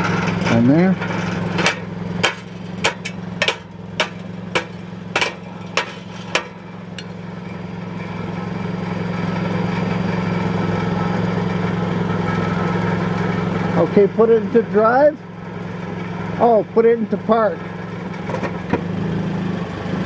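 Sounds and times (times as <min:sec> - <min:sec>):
sharp taps on metal: 0:00.0 - 0:07.2
car engine idling: 0:00.0 - 0:18.8.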